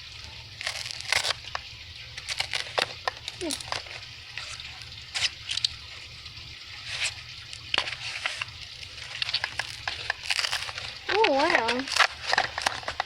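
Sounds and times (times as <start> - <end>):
low steady hum: 0.0 - 13.0
scissors snipping plastic: 0.6 - 1.6, 2.2 - 4.0, 8.9 - 13.0.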